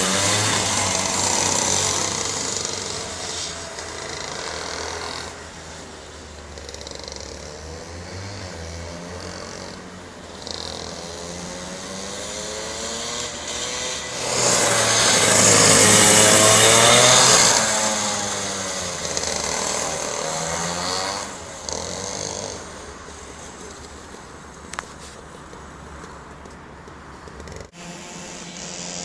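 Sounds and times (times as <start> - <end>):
racing kart engine: 0.0 - 24.8, 27.4 - 29.0.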